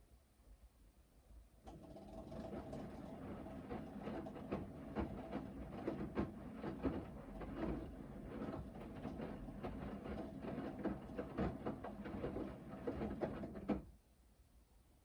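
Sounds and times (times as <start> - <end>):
washing machine motor hum: 1.9 - 13.7.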